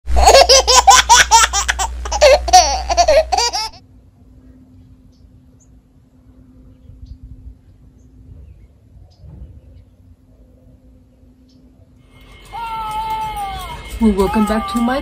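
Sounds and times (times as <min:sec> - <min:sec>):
faint steady hum: 0:00.1 - 0:12.5.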